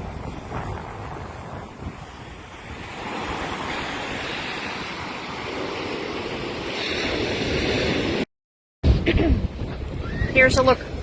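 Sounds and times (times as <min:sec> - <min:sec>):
wind buffeting microphone: 0:00.0 - 0:08.1, 0:08.8 - 0:11.0
ocean surf washing up: 0:00.0 - 0:08.3.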